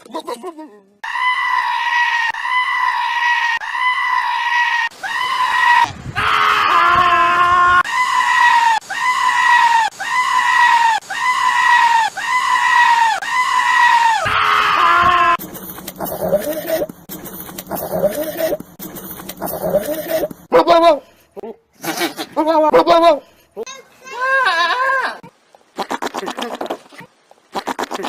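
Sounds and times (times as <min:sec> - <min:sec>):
goat bleating: 0:16.0 - 0:16.9, 0:21.8 - 0:23.2, 0:25.8 - 0:28.0.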